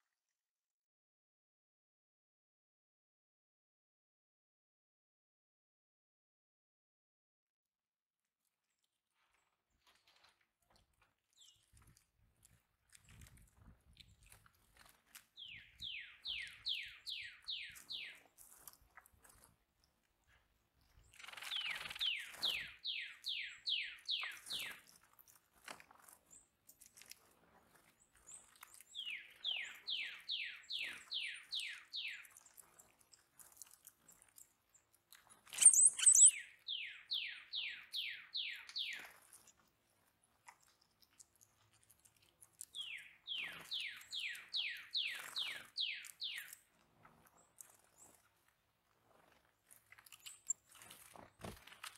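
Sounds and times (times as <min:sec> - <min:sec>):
loud high bird chirp: 0:15.4 - 0:18.2, 0:21.2 - 0:24.8, 0:28.9 - 0:32.3, 0:35.5 - 0:39.0, 0:42.8 - 0:46.6.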